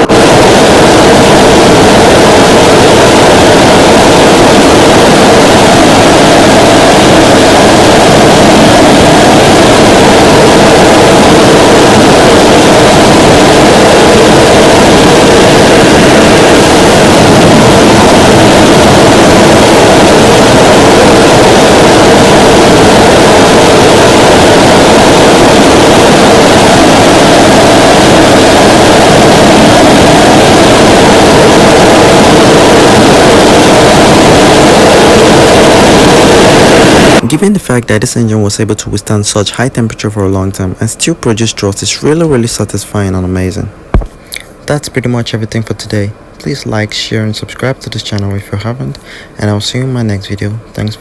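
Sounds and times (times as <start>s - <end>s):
jet engine roaring: 0.0s - 37.3s.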